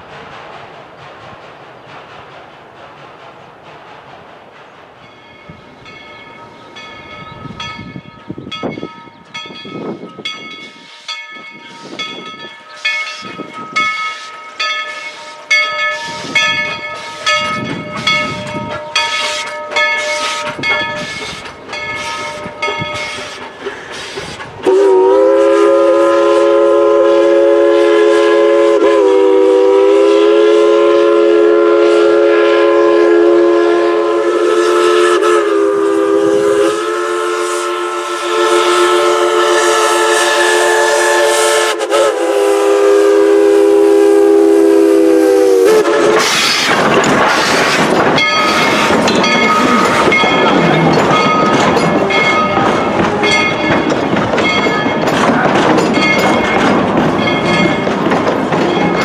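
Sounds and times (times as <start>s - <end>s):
steam locomotive chuffing: 0.0s - 59.0s
steam whistle chord: 24.6s - 46.6s.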